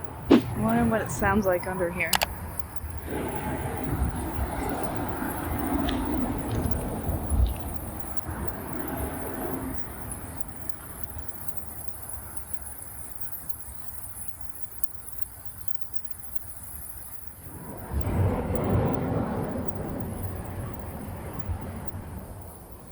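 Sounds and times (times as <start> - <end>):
highway traffic rumbling: 0.0 - 8.2
insects chirring: 0.0 - 17.6.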